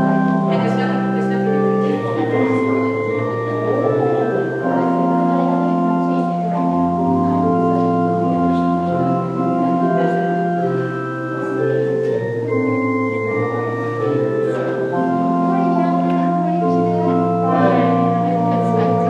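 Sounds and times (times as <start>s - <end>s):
church organ chords: 0.0s - 19.0s.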